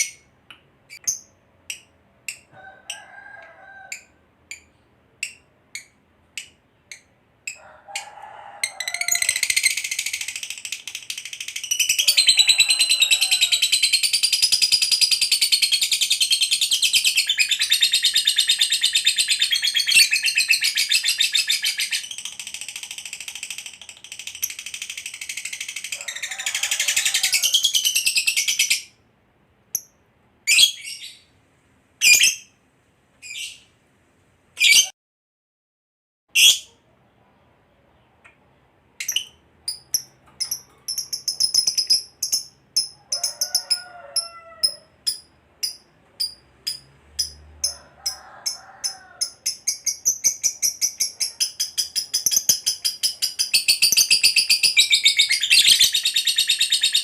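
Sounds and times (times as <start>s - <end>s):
bird chattering trill: 8.9s - 26.3s, 39.0s - 43.8s, 49.2s - 57.0s.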